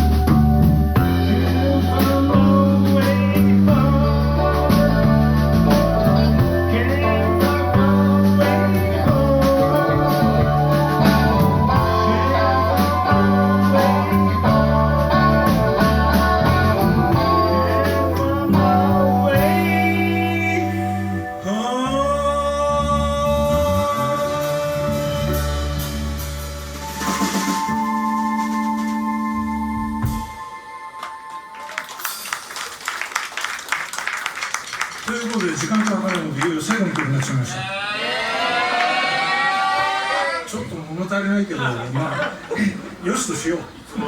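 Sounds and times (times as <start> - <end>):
bass line: 0.0 - 30.7
electric guitar: 0.0 - 32.2
blues band playing: 0.0 - 33.4.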